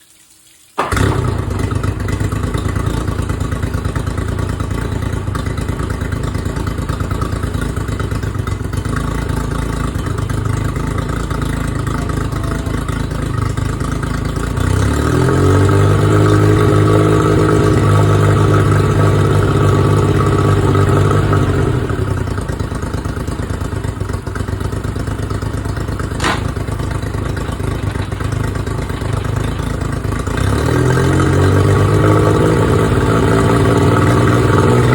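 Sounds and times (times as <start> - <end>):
outboard motor running: 0.8 - 34.9
sharp click: 26.2 - 26.6.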